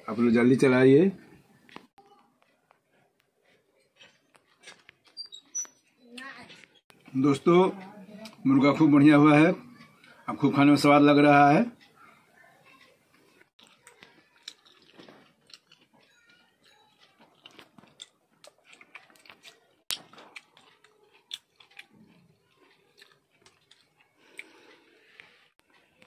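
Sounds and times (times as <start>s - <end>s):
person chewing food: 1.8s - 5.7s, 13.1s - 26.0s
small crunching clicks: 13.4s - 26.0s.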